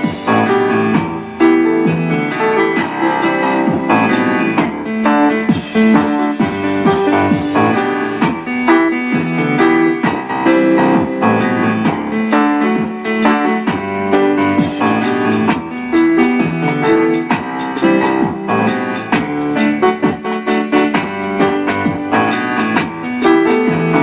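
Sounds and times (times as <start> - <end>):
piano chords and runs: 0.0 - 24.0.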